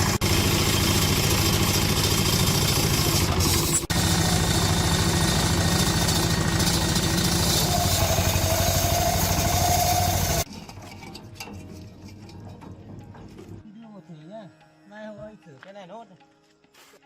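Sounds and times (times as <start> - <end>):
diesel engine running: 0.0 - 10.5.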